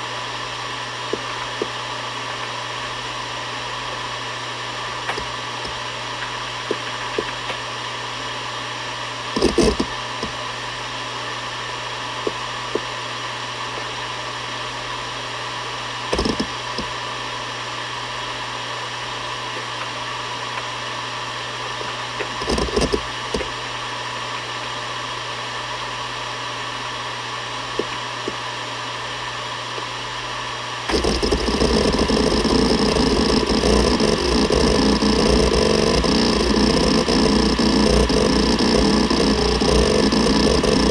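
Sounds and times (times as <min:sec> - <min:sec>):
hard drive spinning hum: 0:00.0 - 0:40.9
hard drive head-seek clatter: 0:09.4 - 0:10.4, 0:16.1 - 0:17.0, 0:21.8 - 0:23.7, 0:30.9 - 0:40.9.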